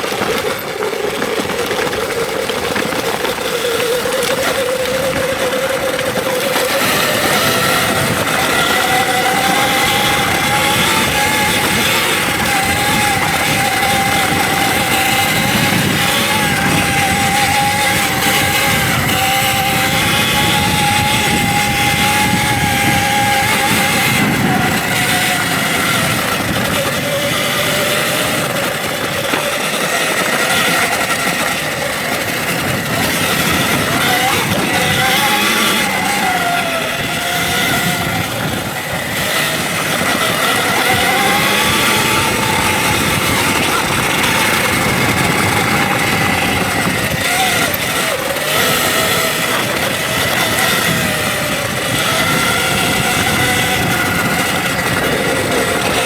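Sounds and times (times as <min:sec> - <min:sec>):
electric motor whine: 0:00.0 - 0:56.0
steady noisy rush: 0:00.0 - 0:56.0.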